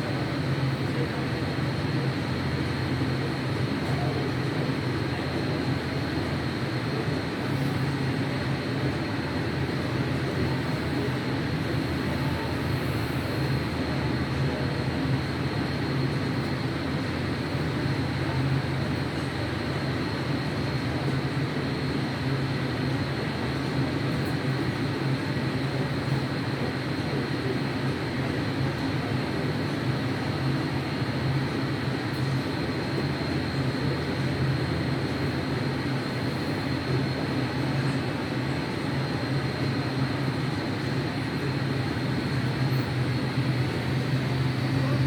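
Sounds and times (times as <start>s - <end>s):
airplane engine drone: 0.0s - 45.0s
faint high whine: 31.7s - 45.0s.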